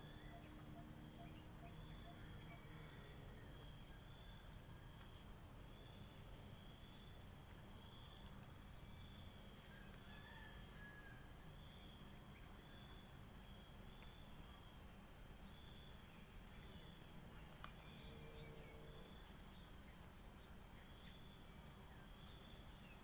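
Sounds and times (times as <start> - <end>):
insects chirping: 0.0 - 10.5, 11.4 - 23.0.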